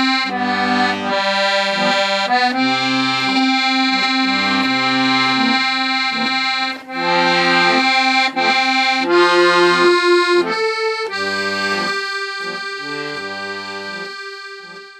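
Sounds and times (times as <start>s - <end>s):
accordion playing slow tune: 0.0s - 14.9s.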